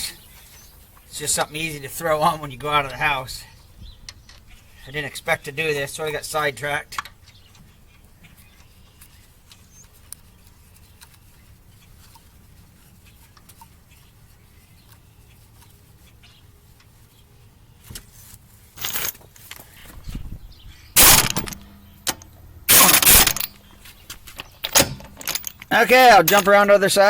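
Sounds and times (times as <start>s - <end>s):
harsh loud noises: 22.7s - 23.5s.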